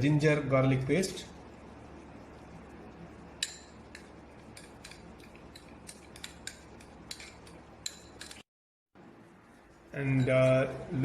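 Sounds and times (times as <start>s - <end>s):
faint steady hum: 0.0s - 8.4s, 9.0s - 11.0s.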